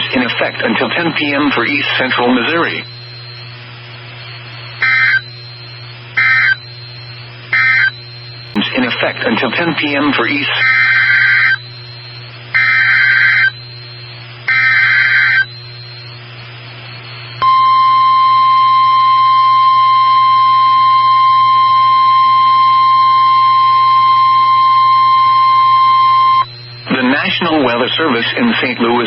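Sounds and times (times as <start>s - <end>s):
single-pitch warning alarm tone: 1.4s - 28.2s
screechy digital data bursts: 4.8s - 16.1s.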